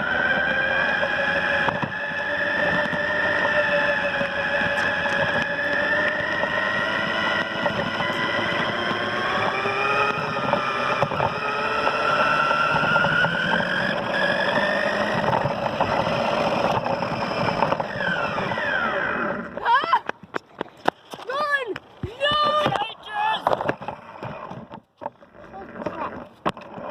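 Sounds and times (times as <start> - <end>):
toy car motor whining: 0.0 - 20.0
wheels rolling on concrete: 0.0 - 26.9.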